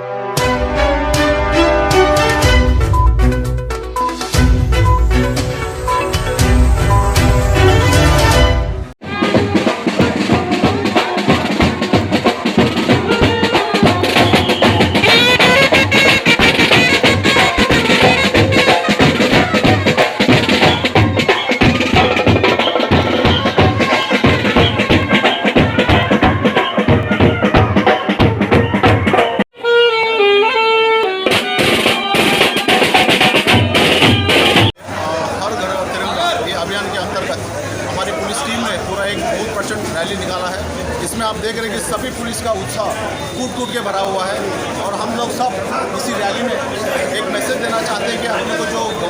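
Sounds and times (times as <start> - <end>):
melody over drums: 0.3 - 29.4, 31.2 - 34.7
rapid snare drumming: 9.0 - 29.4, 31.2 - 34.8.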